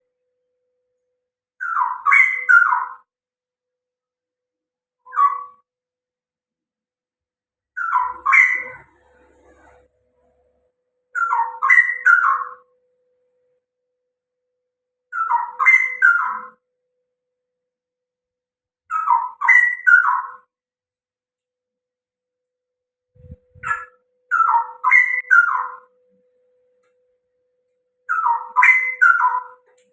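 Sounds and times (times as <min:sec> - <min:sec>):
bird warbling song: 0:01.6 - 0:03.1, 0:05.0 - 0:05.6, 0:07.8 - 0:09.8, 0:11.1 - 0:12.7, 0:15.1 - 0:16.6, 0:18.9 - 0:20.5, 0:23.2 - 0:26.0, 0:28.1 - 0:29.7.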